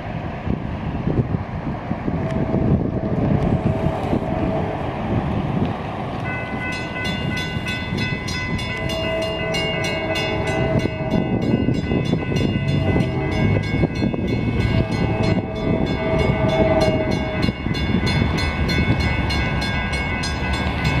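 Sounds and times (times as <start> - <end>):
diesel locomotives rumbling: 0.0 - 21.0
train horn: 2.2 - 5.1, 6.3 - 18.5
crossing bell ringing: 6.2 - 21.0.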